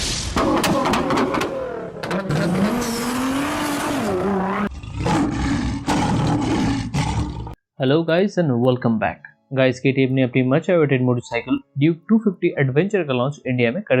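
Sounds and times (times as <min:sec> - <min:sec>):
vehicle engine revving: 0:00.7 - 0:05.2.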